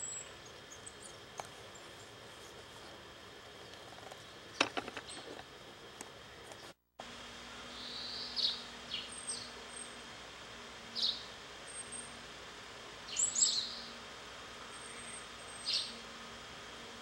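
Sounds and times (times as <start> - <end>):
bird chirping: 7.8 - 9.5, 13.1 - 13.9, 14.7 - 16.0.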